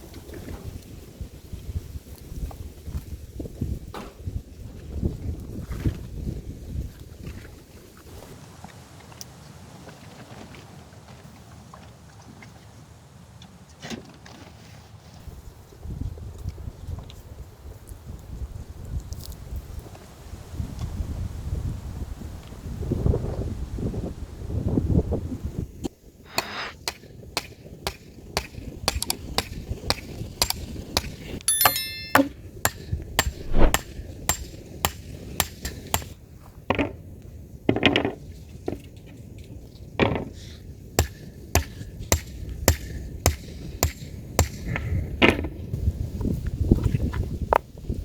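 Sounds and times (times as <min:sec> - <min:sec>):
brief metallic ring: 0:31.5 - 0:32.4.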